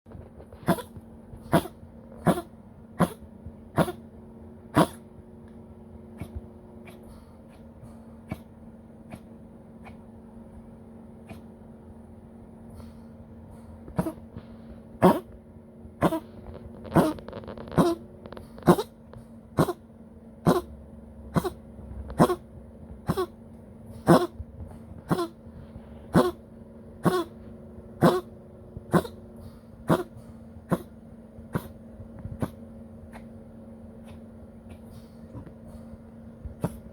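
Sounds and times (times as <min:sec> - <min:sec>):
dog coughing harshly: 0:00.6 - 0:04.0, 0:04.7 - 0:05.0, 0:14.0 - 0:14.2, 0:15.0 - 0:15.3, 0:16.0 - 0:16.3, 0:18.6 - 0:18.9, 0:19.6 - 0:19.8, 0:20.4 - 0:20.7, 0:21.3 - 0:21.6, 0:22.2 - 0:22.4, 0:23.0 - 0:23.3, 0:24.0 - 0:24.4, 0:25.1 - 0:25.4, 0:27.0 - 0:27.3, 0:28.0 - 0:28.3, 0:28.9 - 0:29.2, 0:29.9 - 0:30.1, 0:31.5 - 0:31.8.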